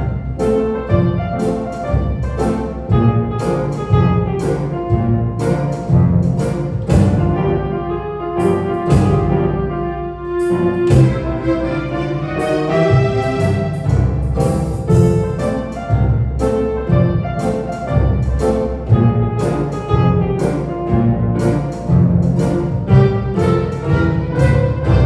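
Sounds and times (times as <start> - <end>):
piano chords: 0.0 - 25.0
woodwind and brass notes: 6.4 - 25.0.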